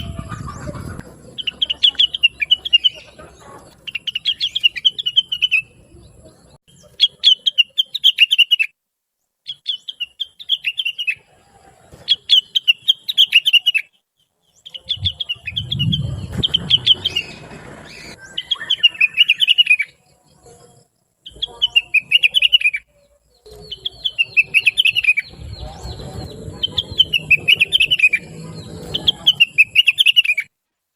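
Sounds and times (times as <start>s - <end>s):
bird chirping song: 0.0s - 30.5s
low rumbling noise: 14.8s - 18.4s, 25.2s - 29.2s.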